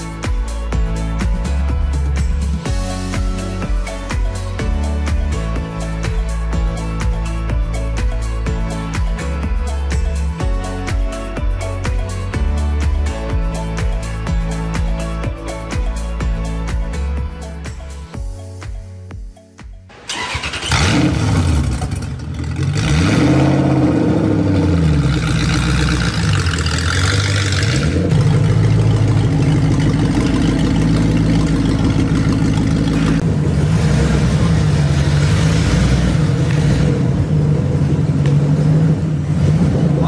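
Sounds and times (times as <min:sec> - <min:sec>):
car engine starting and revving: 0:20.0 - 0:40.0.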